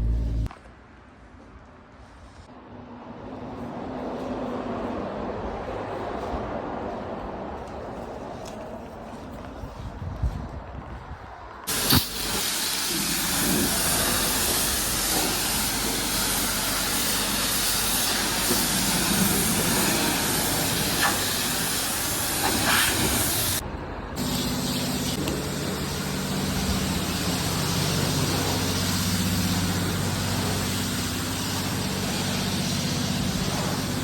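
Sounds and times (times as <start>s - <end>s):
low hum: 0.0s - 0.5s
high-pressure water spraying: 11.7s - 23.6s, 24.2s - 34.0s.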